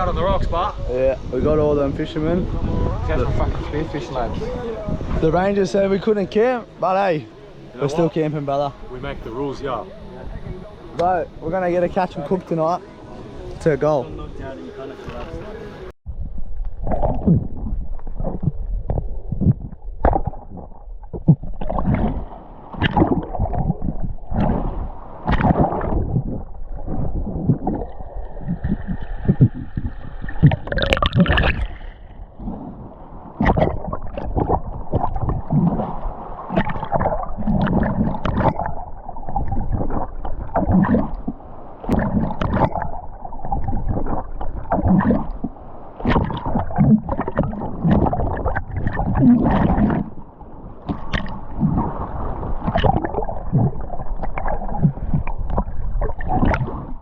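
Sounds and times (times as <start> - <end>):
water gurgling underwater: 16.1 - 57.0.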